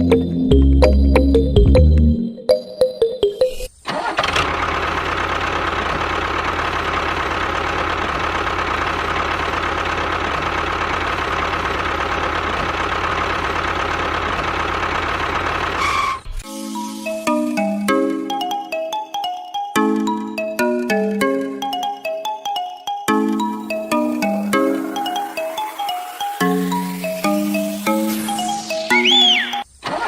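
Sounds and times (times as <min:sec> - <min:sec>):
small engine running: 0:03.9 - 0:16.2, 0:23.4 - 0:30.0.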